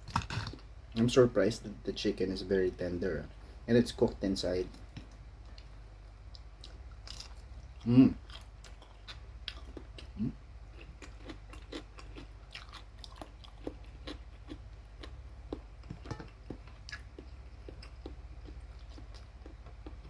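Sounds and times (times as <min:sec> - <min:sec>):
chewing crisp fried chicken: 0:04.6 - 0:20.0
closed-mouth hum: 0:07.6 - 0:08.5, 0:09.6 - 0:10.7.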